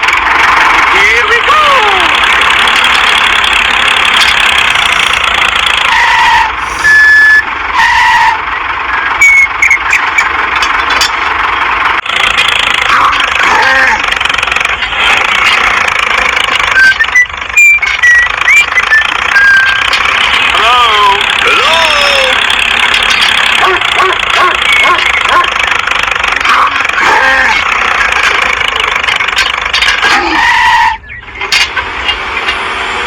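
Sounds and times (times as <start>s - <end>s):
toy motor whining: 12.2s - 25.8s, 26.4s - 31.1s.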